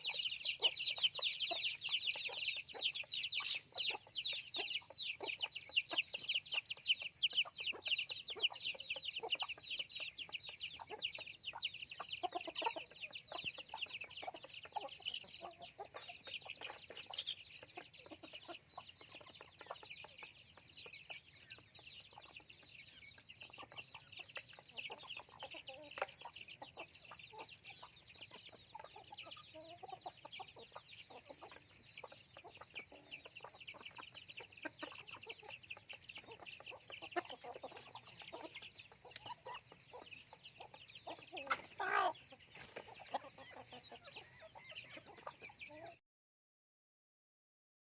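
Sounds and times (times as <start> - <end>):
chickens clucking: 0.0 - 46.0
chicks cheeping: 0.0 - 46.0.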